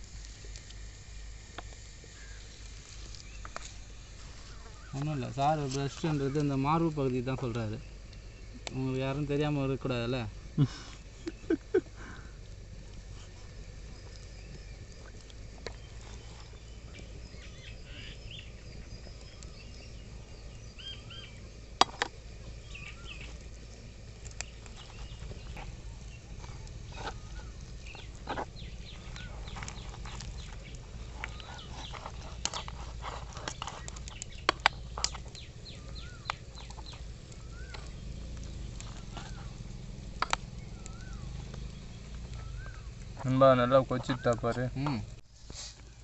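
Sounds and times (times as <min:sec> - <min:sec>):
low wind rumble: 0:00.0 - 0:46.0
birds chirping and clucking: 0:15.7 - 0:45.1.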